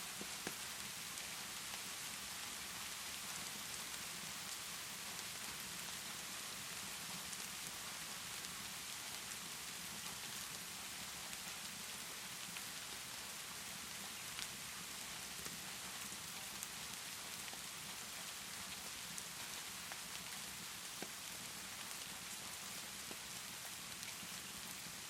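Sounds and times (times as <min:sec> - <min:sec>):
rainfall hiss: 0:00.0 - 0:25.0
fireplace crackles: 0:13.8 - 0:24.9.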